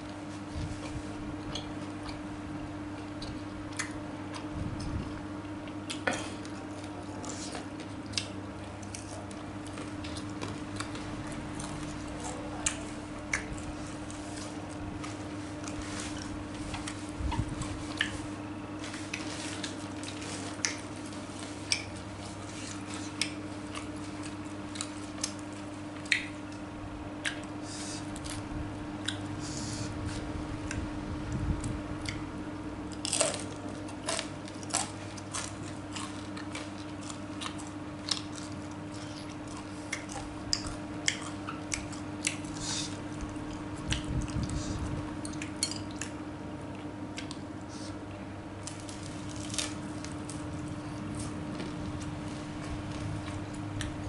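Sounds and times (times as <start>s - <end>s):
close chewing and biting: 3.0s - 18.3s, 18.9s - 26.6s, 32.9s - 48.0s.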